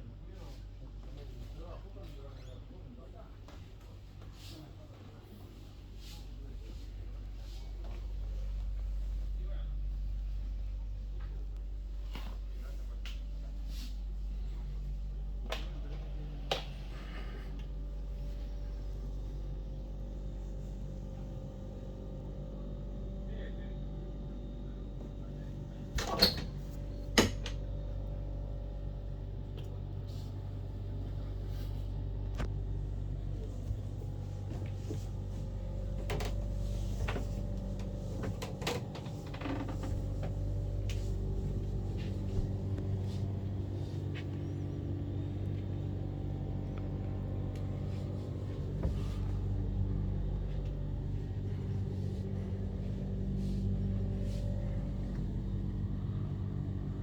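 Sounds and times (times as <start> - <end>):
boat engine humming: 32.7 - 57.0
light clicks and bumps: 33.2 - 45.7.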